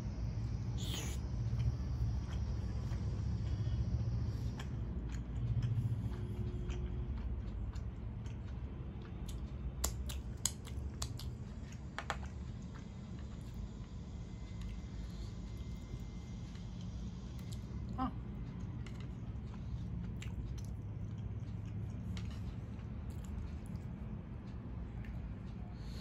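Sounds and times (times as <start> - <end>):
chewing food: 0.8 - 26.0
fingers being licked: 9.1 - 11.4.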